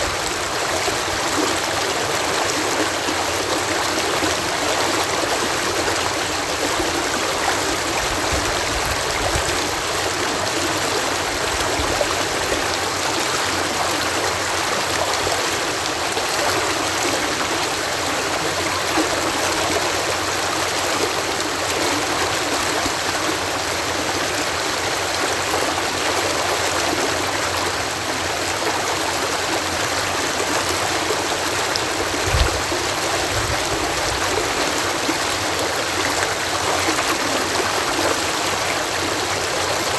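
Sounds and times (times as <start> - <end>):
water rushing through canal lock: 0.0 - 39.9
low thump: 32.2 - 33.7.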